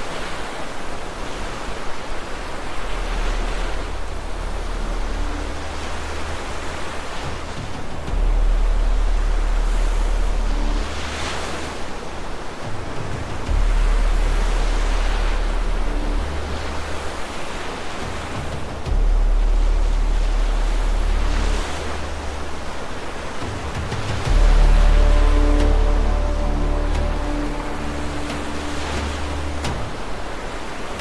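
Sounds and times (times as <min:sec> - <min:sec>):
heavy waves: 0:00.0 - 0:31.0
rushing flood water: 0:00.0 - 0:31.0
deep low rumble: 0:07.4 - 0:11.0, 0:13.5 - 0:17.1, 0:18.7 - 0:30.6.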